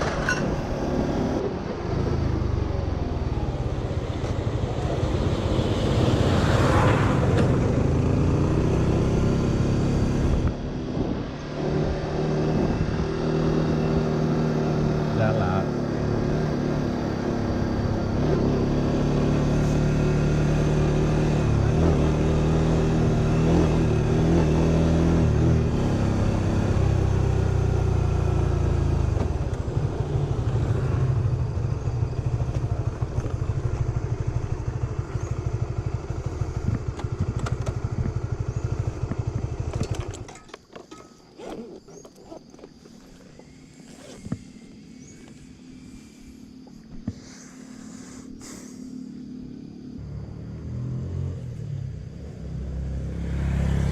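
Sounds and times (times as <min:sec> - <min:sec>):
motorcycle engine running: 0:11.6 - 0:41.3.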